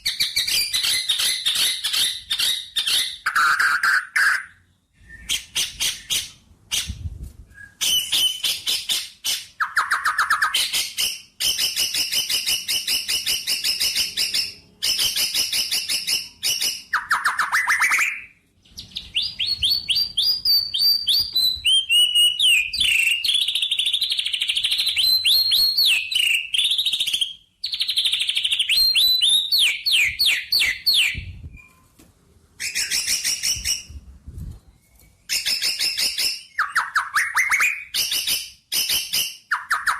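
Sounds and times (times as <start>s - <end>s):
small birds chirping: 0.0s - 31.8s.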